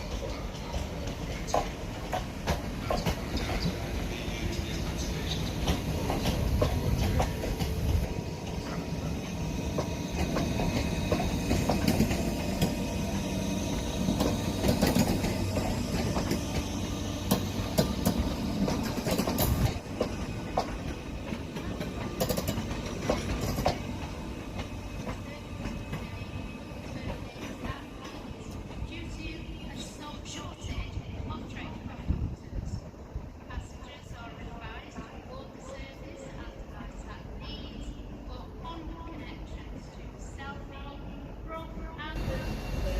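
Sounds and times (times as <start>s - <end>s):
train rumble: 0.0s - 42.9s
wheels clicking over rail joints: 4.6s - 28.8s.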